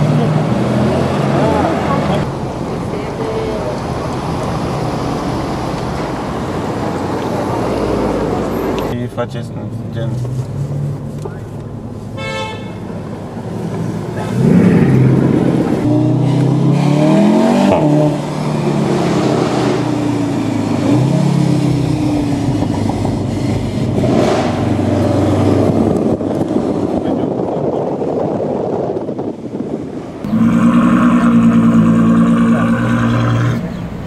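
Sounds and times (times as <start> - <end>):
car engines accelerating past: 13.7 - 27.1.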